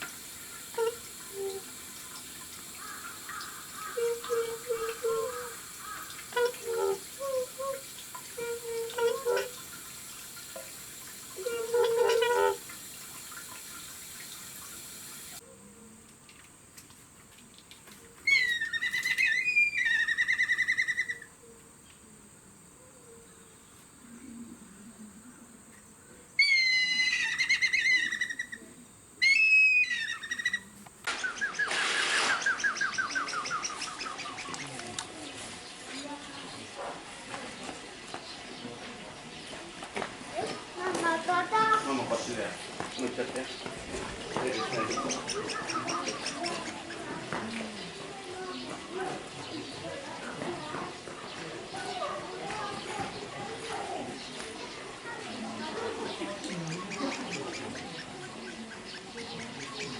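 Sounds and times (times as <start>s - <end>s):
whistled calls with trill: 18.3s - 21.3s, 26.4s - 28.6s, 29.2s - 30.6s, 31.2s - 34.3s
harsh bird call: 26.4s - 28.6s, 29.2s - 34.4s.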